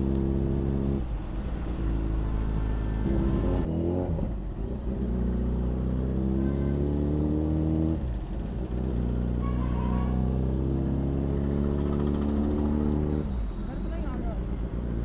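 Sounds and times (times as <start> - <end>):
motorcycle engine accelerating: 10.0 - 13.7.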